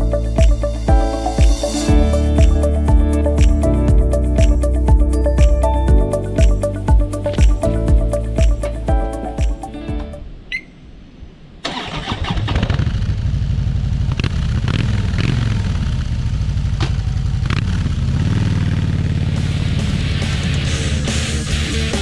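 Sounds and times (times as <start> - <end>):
motorcycle engine starting and idling: 11.6 - 22.0.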